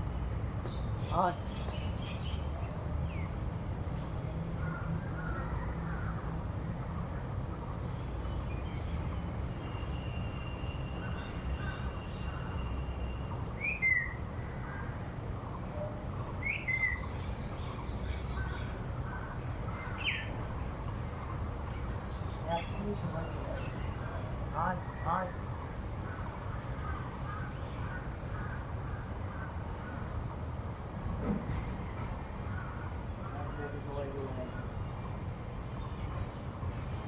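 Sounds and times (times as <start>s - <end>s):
high-pitched insect drone: 0.0s - 37.0s
faint bird chirps: 9.6s - 14.9s, 15.5s - 20.3s.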